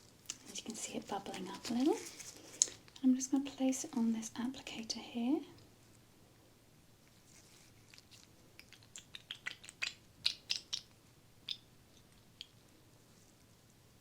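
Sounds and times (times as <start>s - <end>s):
gel crisp clicks and crackles: 0.1s - 3.5s, 7.8s - 12.6s.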